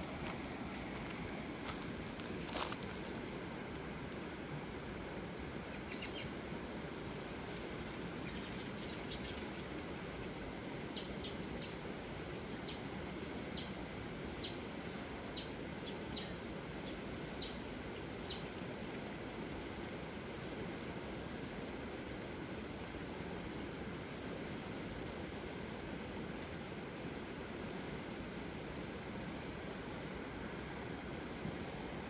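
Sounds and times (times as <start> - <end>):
river water flowing: 0.0 - 5.6.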